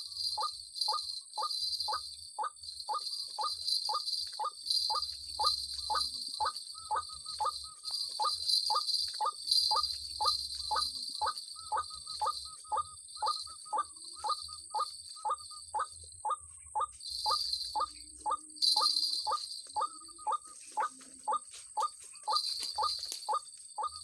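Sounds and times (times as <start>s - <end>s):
high drone of insects: 0.0s - 24.0s
waterhen calling: 2.4s - 24.0s.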